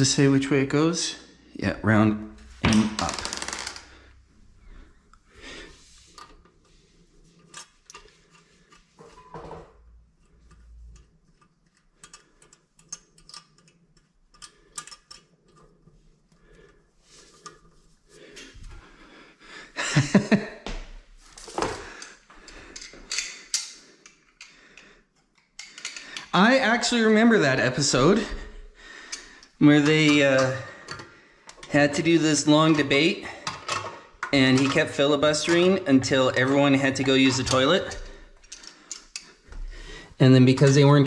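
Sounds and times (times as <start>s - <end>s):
small parts clicking and clinking: 7.3s - 9.3s, 10.0s - 17.8s, 22.0s - 24.6s, 25.2s - 26.3s, 33.4s - 39.6s.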